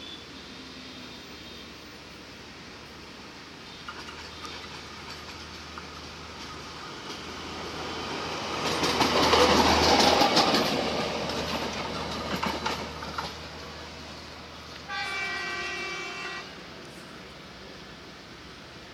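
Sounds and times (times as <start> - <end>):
wheels clicking over rail joints: 3.7 - 15.2
train horn: 14.9 - 16.6.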